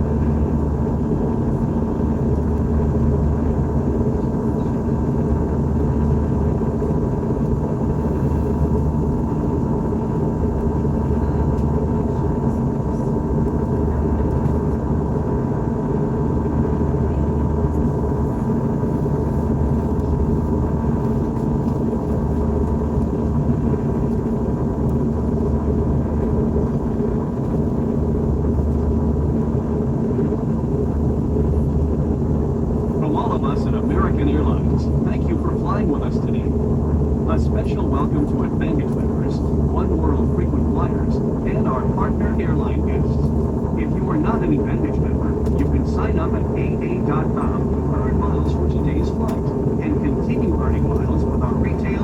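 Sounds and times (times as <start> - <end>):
airplane cabin engine drone: 0.0 - 52.0
faint steady hum tones: 0.0 - 52.0.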